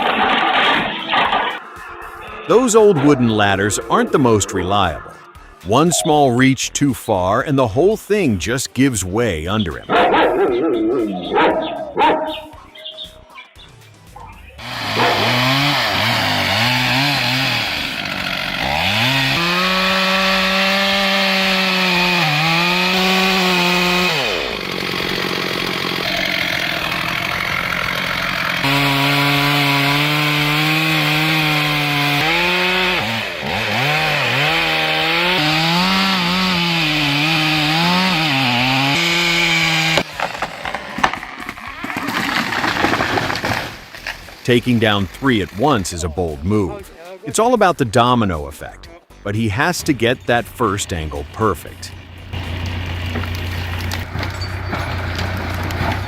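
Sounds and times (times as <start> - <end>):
chainsaw cutting wood: 0.0 - 1.6, 14.6 - 46.6, 50.0 - 56.0
irregular knocks and crackling: 39.9 - 44.5, 52.2 - 56.0.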